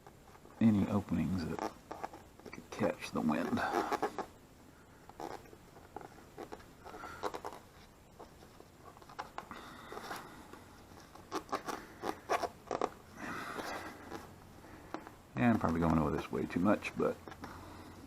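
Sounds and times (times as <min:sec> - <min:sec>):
fingernail scraping a sticker: 0:03.5 - 0:04.3, 0:05.1 - 0:07.7, 0:11.0 - 0:13.0.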